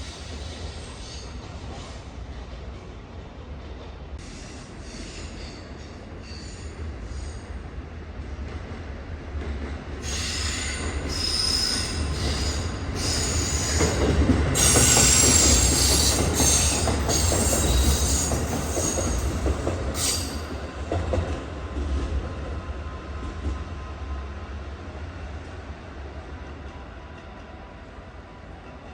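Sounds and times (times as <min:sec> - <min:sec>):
train wheels squealing on rails: 0:00.0 - 0:02.9, 0:04.2 - 0:07.8, 0:10.0 - 0:21.2
train running rumble: 0:00.0 - 0:27.6.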